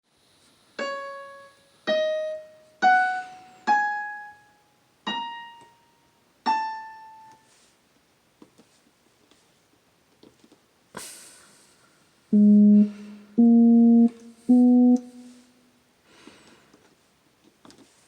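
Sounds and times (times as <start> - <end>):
electronic keyboard piano notes: 12.3 - 15.4.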